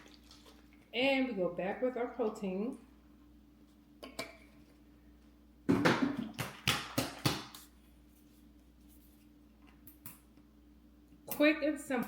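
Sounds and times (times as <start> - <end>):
liquid glugging and splashing: 0.0 - 1.0.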